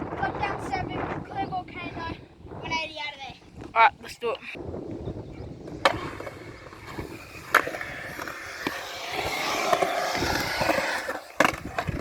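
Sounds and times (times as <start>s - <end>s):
skateboard wheels rolling on concrete: 4.6s - 12.0s
skateboard clacking: 5.7s - 12.0s.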